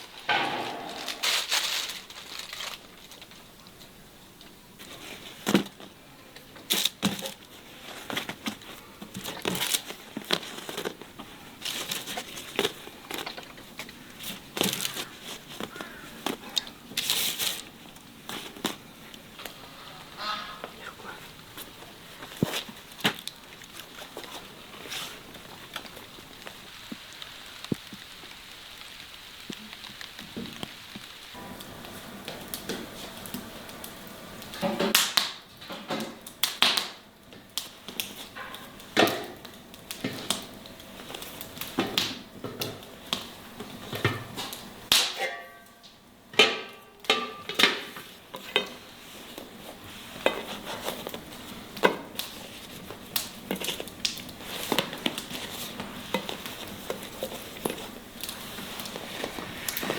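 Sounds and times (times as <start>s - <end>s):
dishes and utensils clinking: 0.1s - 2.5s, 45.1s - 45.8s, 46.4s - 48.0s.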